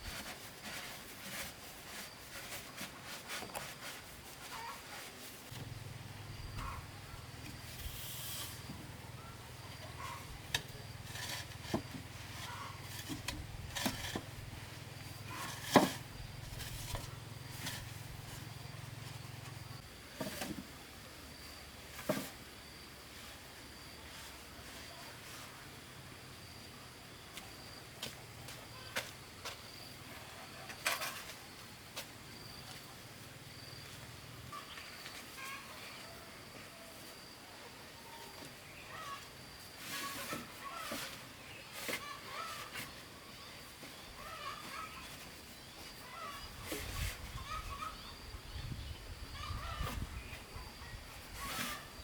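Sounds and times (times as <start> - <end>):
faint insect buzz: 5.5 - 13.3.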